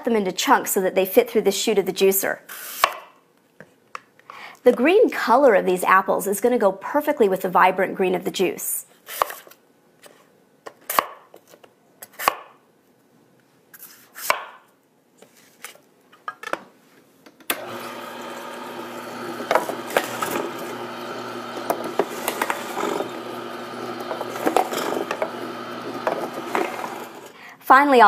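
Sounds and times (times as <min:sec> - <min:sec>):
knife chopping on cutting board: 0:10.9 - 0:11.2, 0:14.2 - 0:14.6
juicer motor humming: 0:17.5 - 0:27.4.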